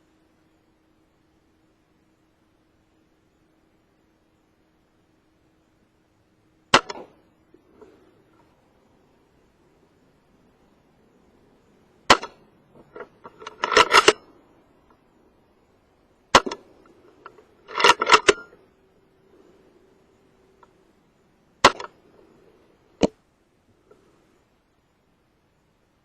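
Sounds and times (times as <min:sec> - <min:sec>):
air rifle shots: 0:06.7 - 0:07.2, 0:12.1 - 0:12.4, 0:13.4 - 0:14.2, 0:16.3 - 0:16.7, 0:17.7 - 0:18.5, 0:21.6 - 0:22.0.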